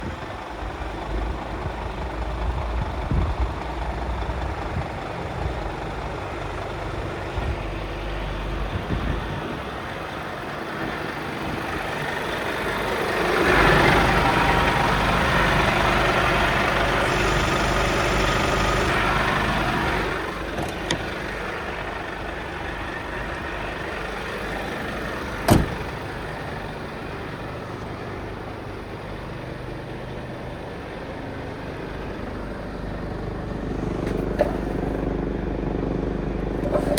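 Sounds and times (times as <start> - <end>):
diesel truck engine idling: 0.0 - 36.9.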